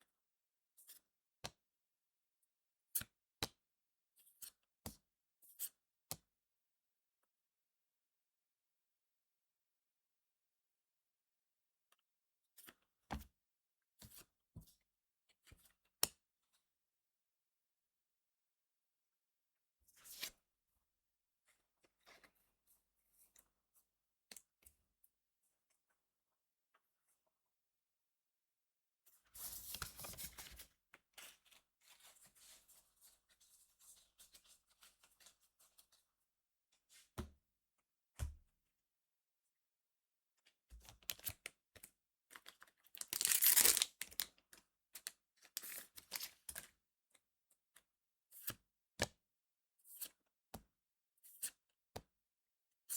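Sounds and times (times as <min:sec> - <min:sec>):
cards and foil rustling: 0:43.0 - 0:44.2.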